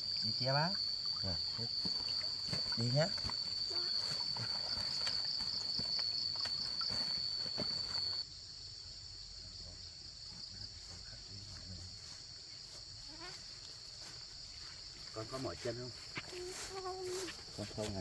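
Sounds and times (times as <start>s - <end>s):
insects shrilling: 0.0s - 9.0s.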